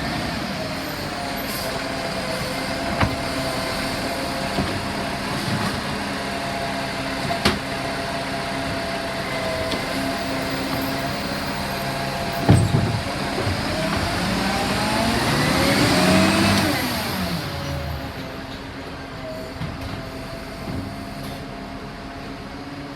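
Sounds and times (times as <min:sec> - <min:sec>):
heavy thump: 0:12.5 - 0:13.6.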